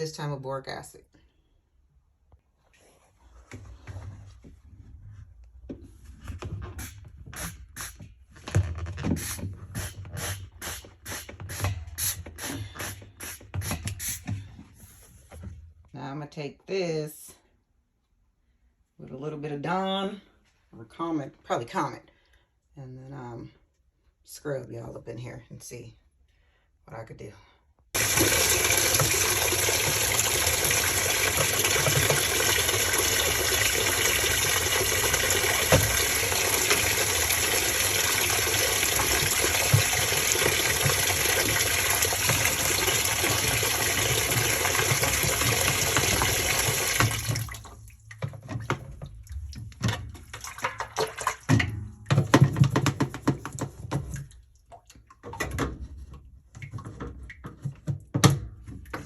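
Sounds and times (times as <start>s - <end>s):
water running into washing machine: 28.0s - 59.0s.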